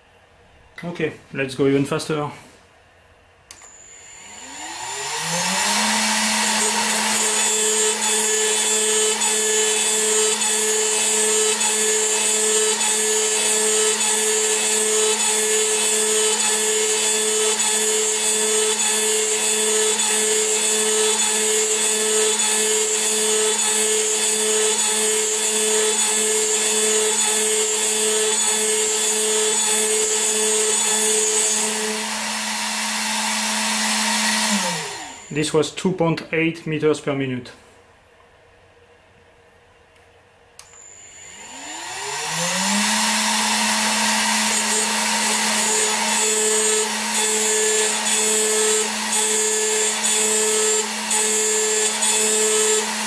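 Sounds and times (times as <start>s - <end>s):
milling machine spindle whine: 3.6s - 35.4s, 40.7s - 53.0s.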